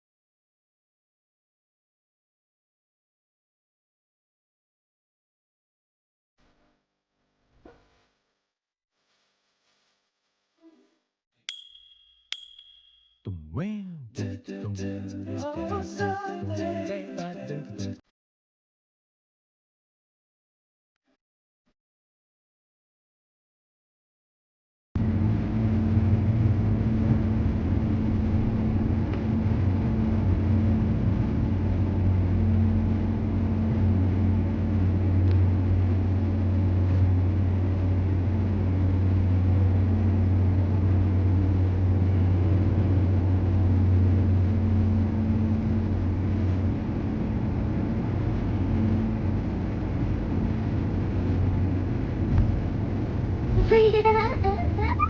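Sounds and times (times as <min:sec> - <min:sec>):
ship engines droning: 0:25.0 - 0:55.0.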